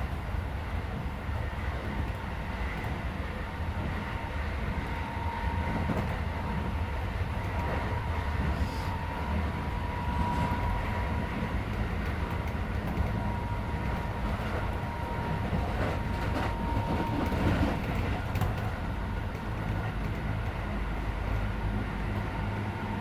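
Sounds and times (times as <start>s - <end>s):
train wheels rumbling: 0.0s - 23.0s
rail-joint clicks: 10.1s - 21.5s.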